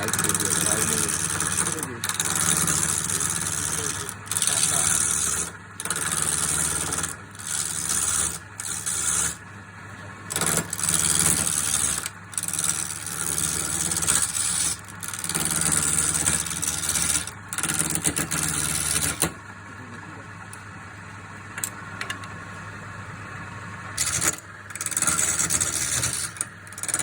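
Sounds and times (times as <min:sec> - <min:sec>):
turning tool rasping wood: 0:00.0 - 0:09.5, 0:10.3 - 0:19.4, 0:24.0 - 0:27.0
wood lathe motor running: 0:00.0 - 0:27.0.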